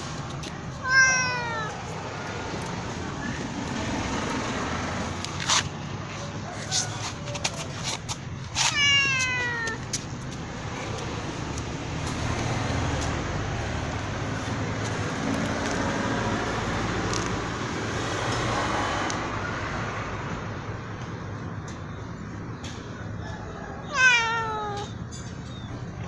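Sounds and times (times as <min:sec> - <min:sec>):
cat meowing loudly: 0:00.8 - 0:02.3, 0:08.6 - 0:09.9, 0:23.8 - 0:25.0.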